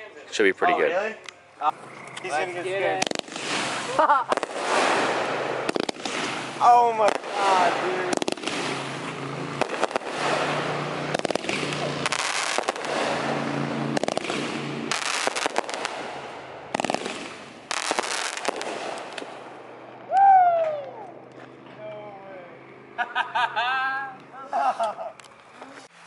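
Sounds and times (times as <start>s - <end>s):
firework crackling pops: 2.9s - 21.0s
firework spark hiss: 3.0s - 19.4s.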